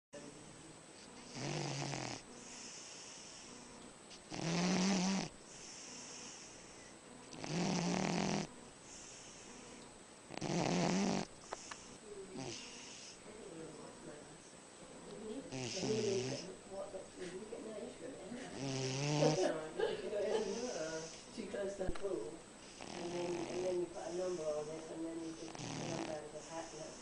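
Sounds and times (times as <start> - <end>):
dog snoring: 1.2 - 13.2, 15.5 - 16.5, 18.4 - 19.6, 22.6 - 27.0.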